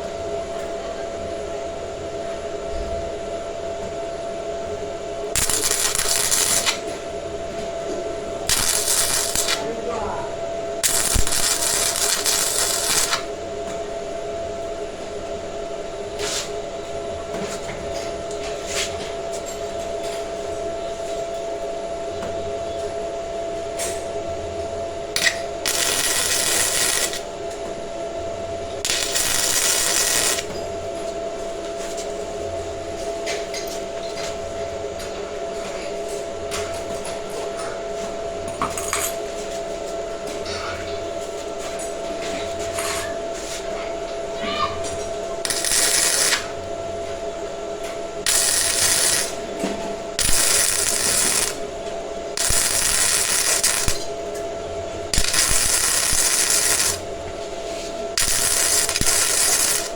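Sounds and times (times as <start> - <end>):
machine hum: 1.4 - 16.1, 21.6 - 31.6, 43.9 - 59.9
harsh hissing: 5.4 - 6.7, 8.5 - 9.6, 10.8 - 13.2, 28.9 - 30.4, 45.5 - 46.4, 48.3 - 49.4, 50.2 - 51.6, 52.4 - 54.0, 55.2 - 57.0, 58.2 - 59.9.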